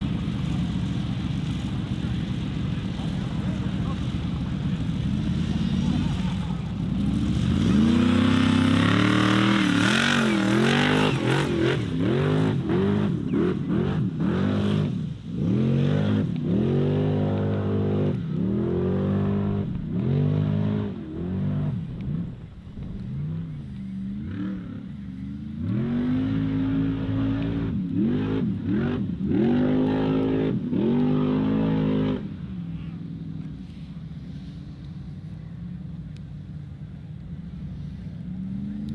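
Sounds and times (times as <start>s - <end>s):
racing engine revving hard: 7.0s - 14.8s, 15.4s - 24.8s.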